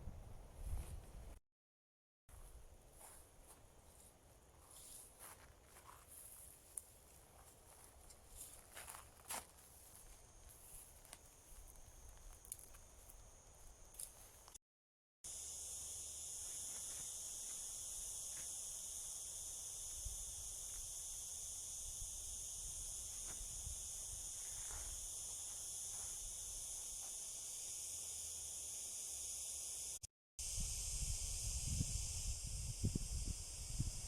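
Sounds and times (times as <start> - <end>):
high-pitched insect chorus: 4.5 - 14.6, 15.3 - 34.0.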